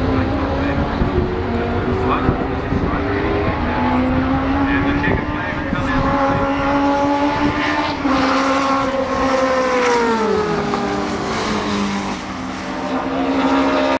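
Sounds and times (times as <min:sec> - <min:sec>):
racing car engine at high revs: 0:00.0 - 0:14.0.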